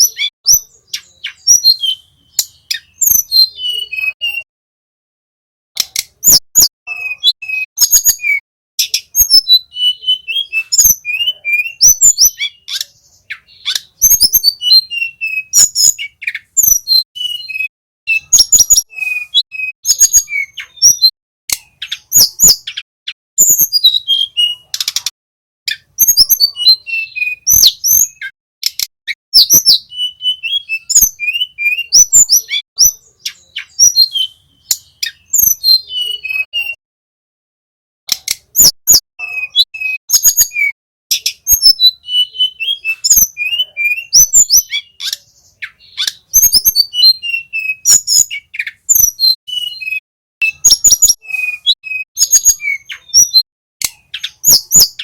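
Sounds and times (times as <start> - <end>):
sharp clicks: 5.8 - 6.2, 28.6 - 28.9, 38.1 - 38.5
flycatcher singing: 6.1 - 25.0, 25.7 - 36.8, 38.5 - 55.0.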